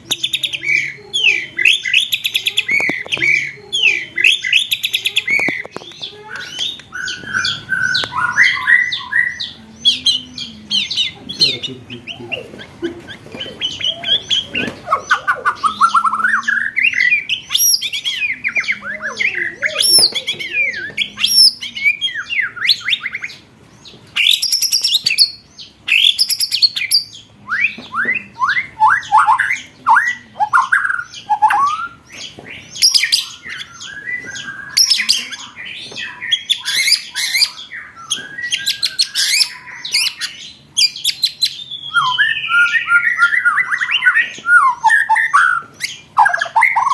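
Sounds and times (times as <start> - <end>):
songbird trills and whistles: 0.1 - 12.4, 13.4 - 23.4, 24.2 - 46.9.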